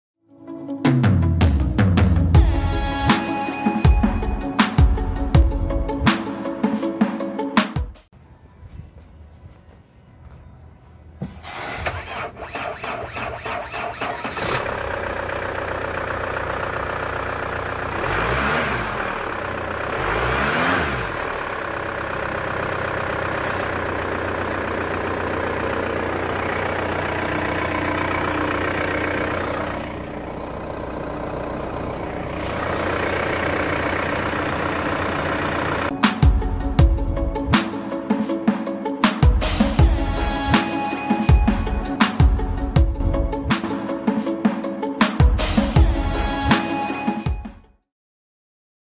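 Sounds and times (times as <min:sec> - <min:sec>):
starter motor cranking: 0:11.4 - 0:15.8
engine revving: 0:11.4 - 0:16.2, 0:17.1 - 0:35.9
car engine idling: 0:11.4 - 0:37.4.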